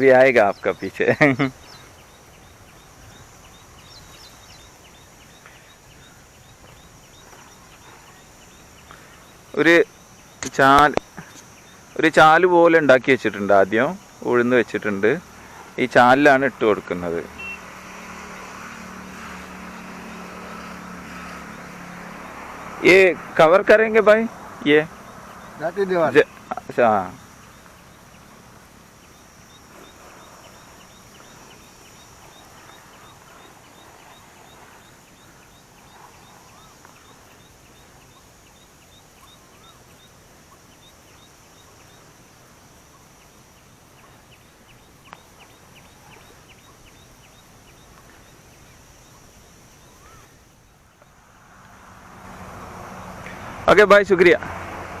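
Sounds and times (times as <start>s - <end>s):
faint bird calls: 0.0s - 12.0s, 24.3s - 51.7s
high insect drone: 0.0s - 55.0s
ticking insect chirp: 0.0s - 55.0s.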